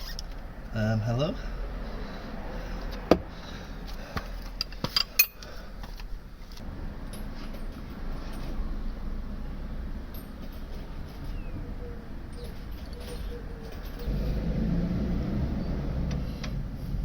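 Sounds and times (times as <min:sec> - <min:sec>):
metal tools clinking: 0:04.4 - 0:08.9, 0:10.0 - 0:14.5.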